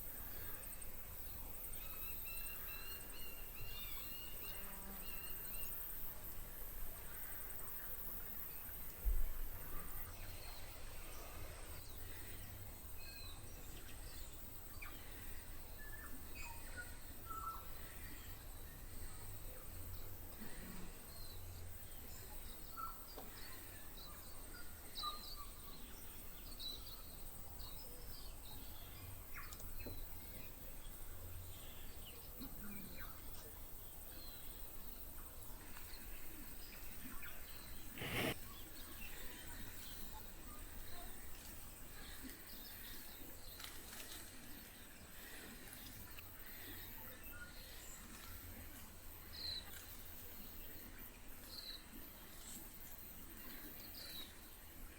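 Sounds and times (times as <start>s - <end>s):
faint bird chirps: 0.2s - 6.0s.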